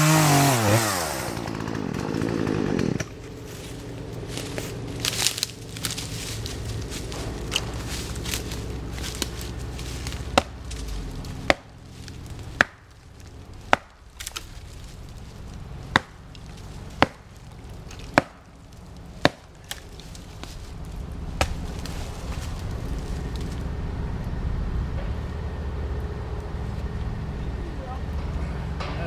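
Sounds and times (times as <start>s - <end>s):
heavy blows into tree trunk: 0.0s - 25.7s.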